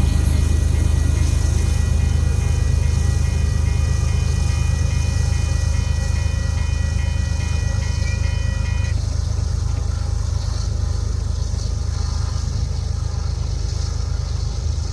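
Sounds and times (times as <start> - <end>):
thin high ringing tone: 0.0 - 13.6
freight train rumbling: 0.0 - 14.9.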